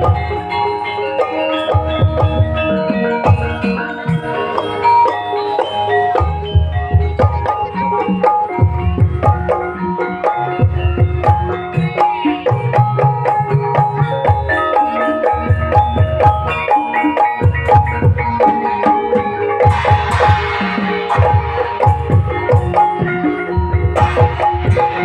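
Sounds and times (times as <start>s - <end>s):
gamelan ensemble playing: 0.0s - 25.0s
hand drum strokes: 19.6s - 25.0s.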